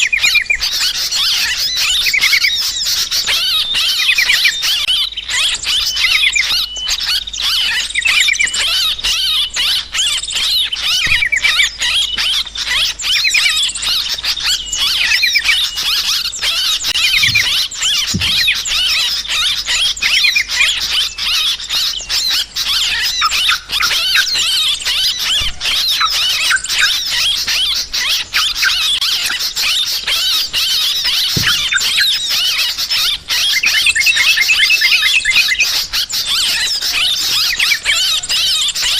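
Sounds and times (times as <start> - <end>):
birds chattering: 0.0 - 38.9
small birds chirping: 0.0 - 38.9.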